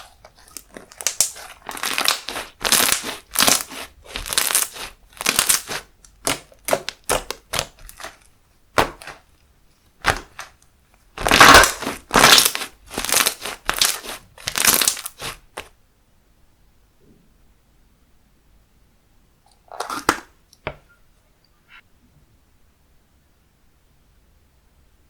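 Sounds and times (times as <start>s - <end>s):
loud slime bursts: 0.0s - 8.2s, 11.2s - 15.5s
slime clicking and popping: 0.4s - 8.2s, 11.2s - 15.3s.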